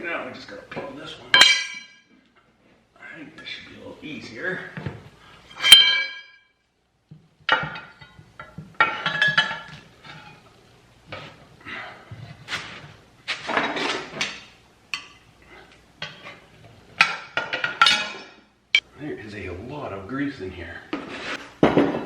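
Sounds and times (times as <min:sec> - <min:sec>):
steel bar clanking on wheel rim: 0:01.4 - 0:02.0.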